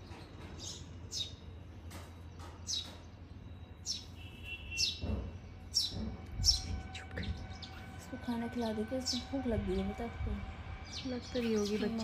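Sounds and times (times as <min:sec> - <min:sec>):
fledgling bird chirping: 0:02.3 - 0:07.9.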